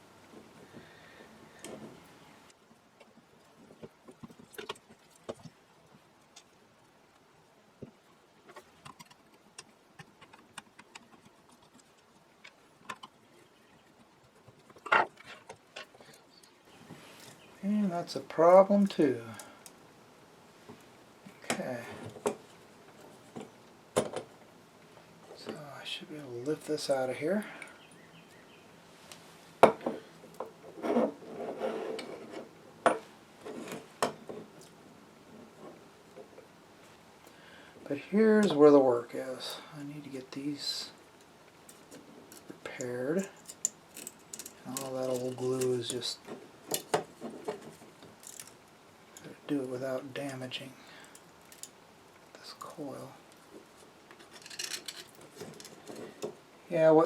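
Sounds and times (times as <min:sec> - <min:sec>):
scraping and rubbing: 0:30.6 - 0:32.5.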